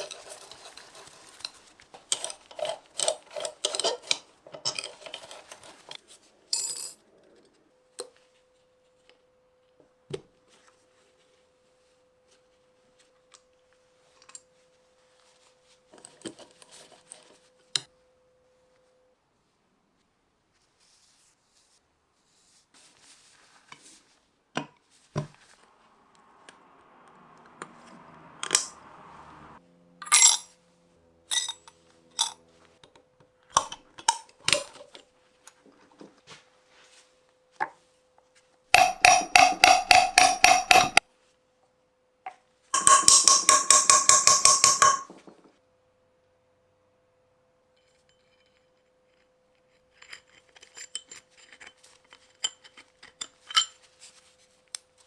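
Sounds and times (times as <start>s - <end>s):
metal tools clinking on workbench: 0.0s - 6.0s, 6.6s - 7.0s, 30.0s - 30.5s, 31.3s - 32.4s, 38.8s - 41.0s, 42.8s - 45.2s, 50.0s - 53.9s
rapid ringing metallic clicking: 38.8s - 41.0s, 42.8s - 45.1s.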